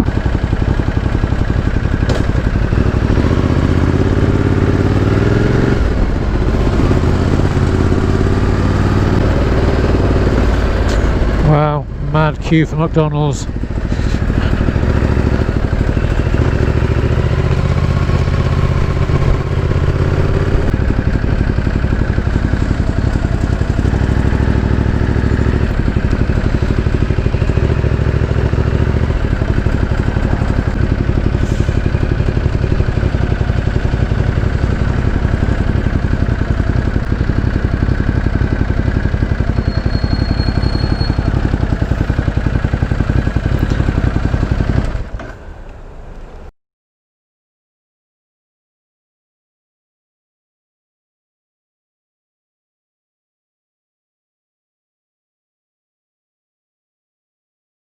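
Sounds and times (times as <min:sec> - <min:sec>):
motorcycle engine running: 0:00.0 - 0:45.6.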